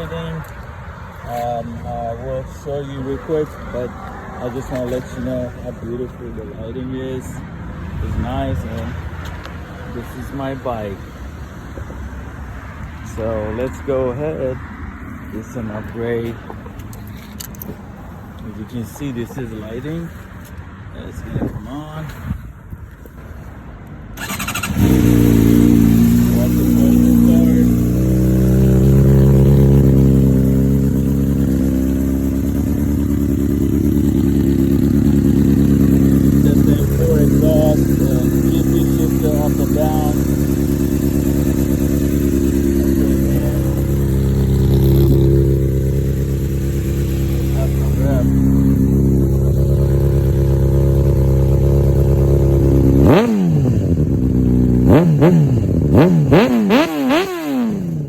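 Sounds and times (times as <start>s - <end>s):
motorcycle engine idling: 24.2s - 56.8s.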